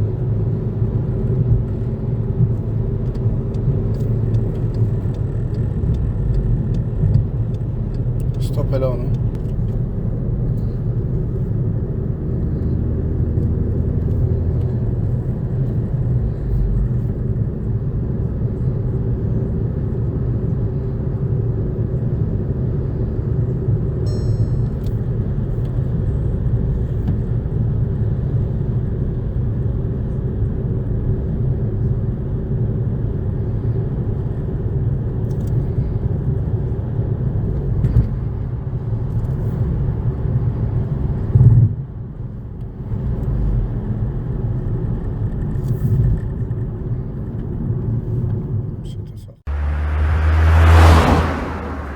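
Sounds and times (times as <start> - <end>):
car engine and road rumble: 0.0 - 51.9
short high-pitched beep: 24.1 - 24.8.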